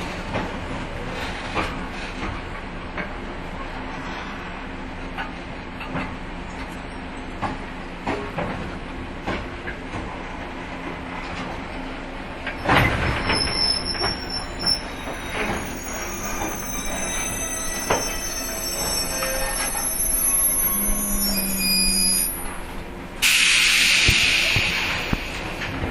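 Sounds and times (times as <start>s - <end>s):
train wheels and brakes squealing: 11.8s - 25.8s
loud hiss: 23.2s - 25.6s.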